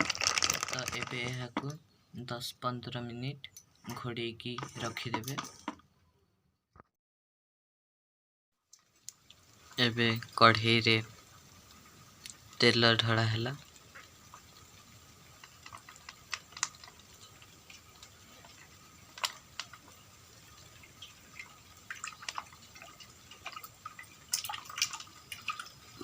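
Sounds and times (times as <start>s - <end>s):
oil ticking and dripping: 0.0s - 1.8s, 8.7s - 26.0s.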